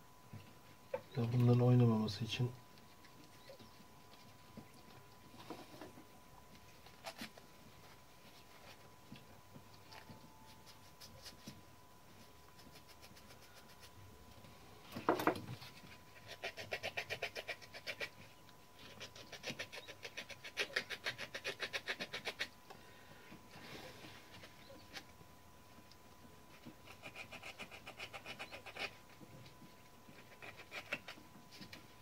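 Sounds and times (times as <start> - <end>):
knock: 15.1 - 15.4.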